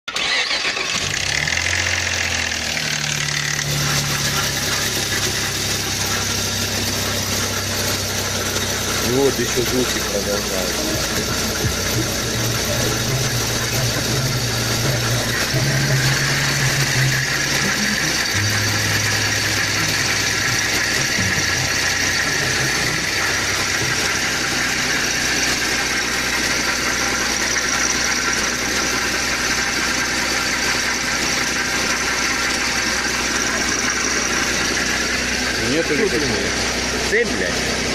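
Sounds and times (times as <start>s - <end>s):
car engine idling: 0.1s - 37.9s
strange engine noise: 0.1s - 37.9s.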